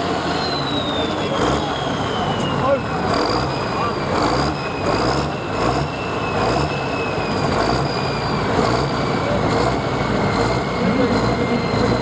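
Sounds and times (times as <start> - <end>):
diesel tractor engine under load: 0.0 - 12.0
high turbo whistle: 0.2 - 2.9.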